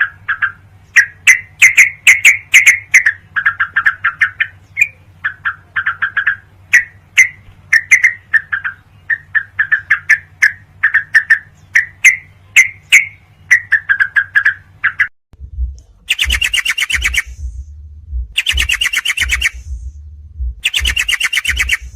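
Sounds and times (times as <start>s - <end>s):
higher faster bird chattering: 0.0s - 15.1s, 16.1s - 17.5s, 18.4s - 19.7s, 20.6s - 21.9s
bird chirping: 0.0s - 17.7s, 18.3s - 21.9s
low steady hum: 0.0s - 21.9s.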